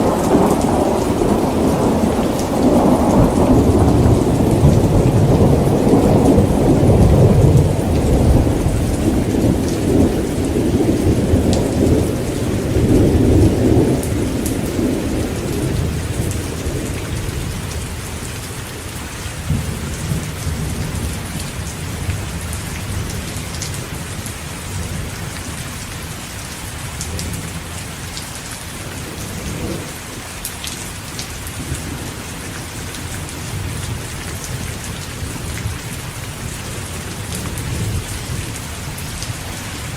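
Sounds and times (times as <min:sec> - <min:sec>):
thunder rumbling: 0:00.0 - 0:18.5, 0:28.6 - 0:30.2
heavy rain: 0:00.0 - 0:39.9.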